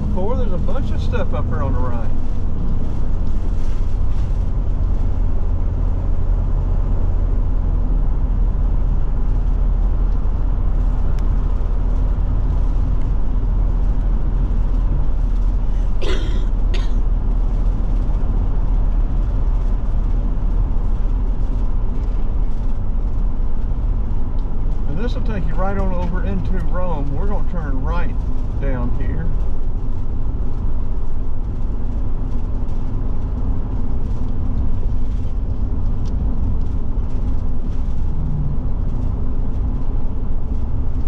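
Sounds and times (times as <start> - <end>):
motorhome engine and road drone: 0.0 - 41.0.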